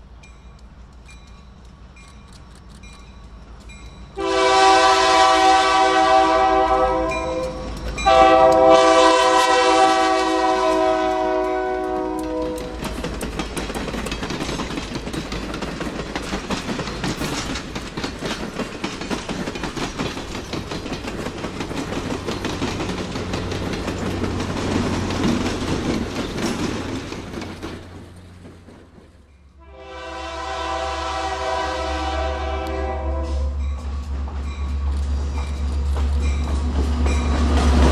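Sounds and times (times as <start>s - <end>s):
train wheels clicking over rail joints: 0.0s - 4.3s, 6.6s - 29.6s, 32.7s - 37.9s
train rumble: 0.0s - 37.9s
locomotive horn: 4.2s - 12.9s, 29.6s - 33.6s.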